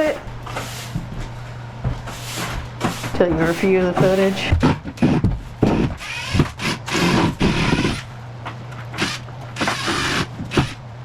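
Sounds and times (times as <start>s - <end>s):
power drill driving screws: 6.0s - 8.1s, 9.0s - 10.8s.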